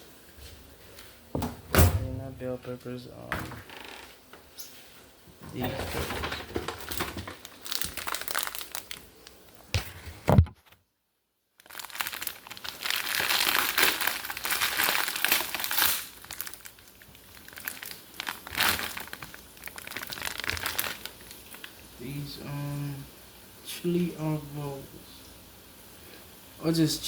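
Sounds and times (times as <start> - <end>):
packaging crinkling and rustling: 5.6 - 10.7, 11.6 - 21.9.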